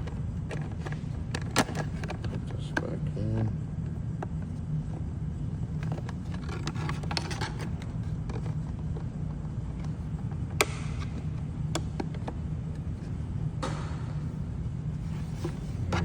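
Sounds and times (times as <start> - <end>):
parts clicking and rattling: 0.0 - 2.9, 5.7 - 14.4
steady low hum: 0.0 - 16.0.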